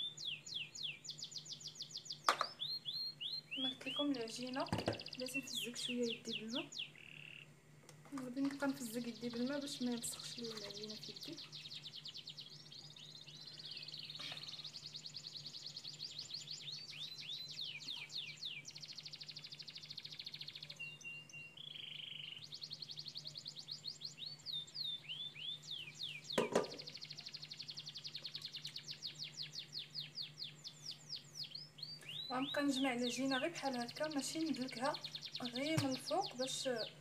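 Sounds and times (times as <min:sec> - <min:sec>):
small bird singing: 0:00.0 - 0:37.0
sharp knock: 0:26.4 - 0:26.8.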